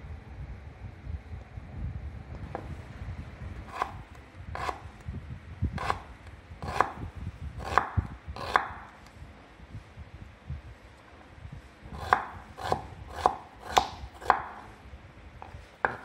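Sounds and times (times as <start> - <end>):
low background rumble: 0.0 - 16.0
knife slicing onion on board: 3.7 - 4.9, 5.8 - 8.9, 12.0 - 14.7, 15.4 - 16.0.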